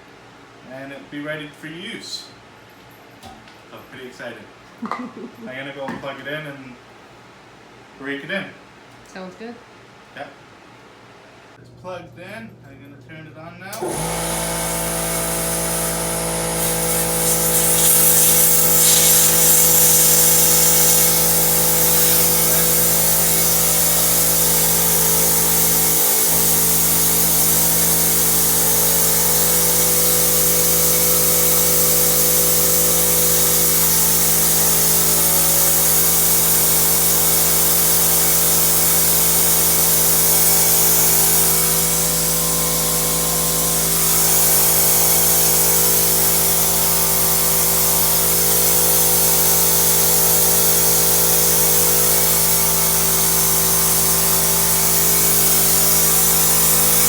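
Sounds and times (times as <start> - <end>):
air compressor running: 13.7 - 57.0
air hissing: 13.8 - 57.0.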